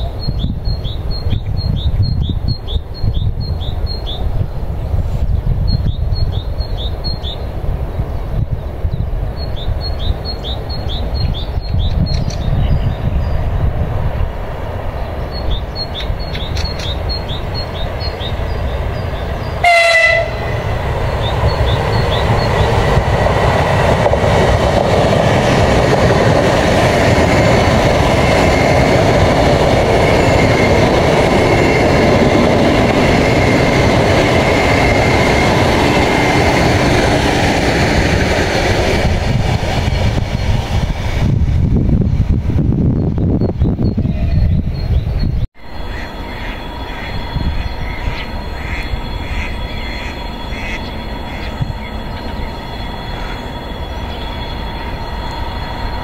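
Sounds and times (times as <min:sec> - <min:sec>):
train rumbling on rails: 0:00.0 - 0:56.0
train horn blast: 0:19.6 - 0:20.7, 0:45.9 - 0:52.2
thin high whine: 0:45.6 - 0:56.0.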